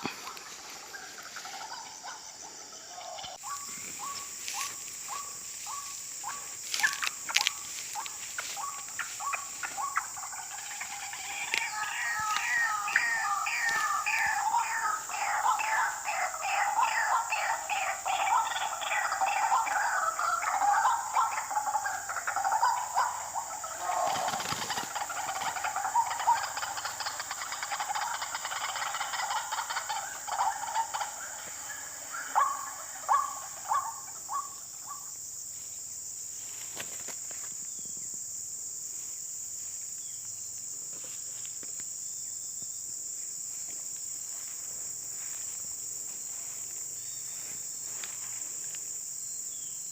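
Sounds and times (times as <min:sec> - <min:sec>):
waterhen croaking calls: 0:00.0 - 0:35.0
high-pitched insect chirring: 0:02.8 - 0:35.3.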